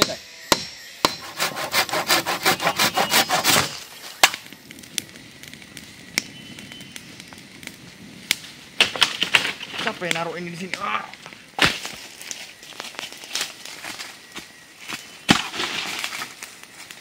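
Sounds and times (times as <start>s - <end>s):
wood being sawn: 1.0s - 3.9s.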